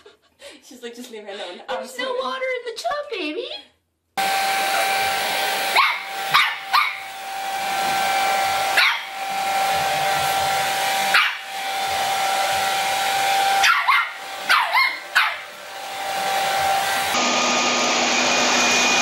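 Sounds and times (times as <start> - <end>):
hair dryer blowing: 4.2 - 19.0
small dog barking: 5.7 - 7.1, 8.7 - 9.2, 11.1 - 11.5, 13.6 - 15.5.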